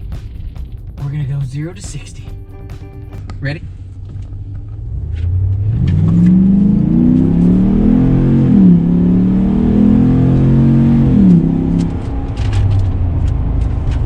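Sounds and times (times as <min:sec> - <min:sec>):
engine accelerating hard: 0:03.0 - 0:14.0.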